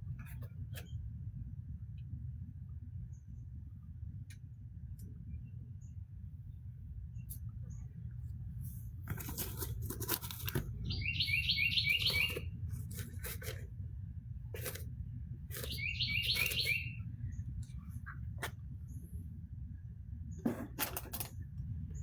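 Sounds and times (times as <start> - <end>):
steady low rumble: 0.0 - 11.1, 12.0 - 15.8, 16.9 - 20.5, 21.2 - 22.0
rustling and scraping: 8.6 - 10.9, 11.9 - 16.8, 20.4 - 21.5
bird chirping call: 10.8 - 12.6, 15.5 - 17.4.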